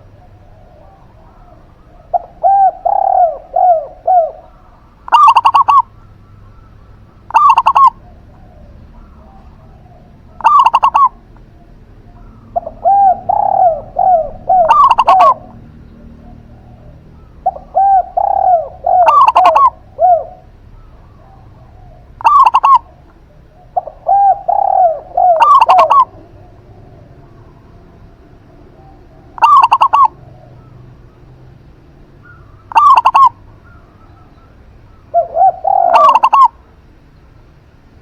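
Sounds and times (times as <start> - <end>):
soft low arching dove coos: 0.0 - 38.0
short loud high dove coos: 17.2 - 21.4, 23.8 - 27.2, 35.0 - 36.6.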